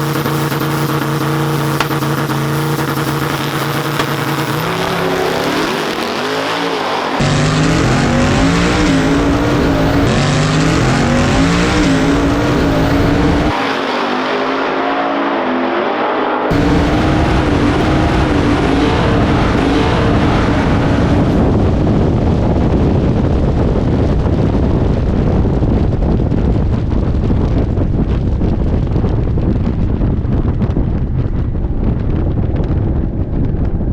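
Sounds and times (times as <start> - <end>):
car engine running: 0.0 - 14.3, 16.5 - 33.5
wind buffeting microphone: 16.5 - 33.9.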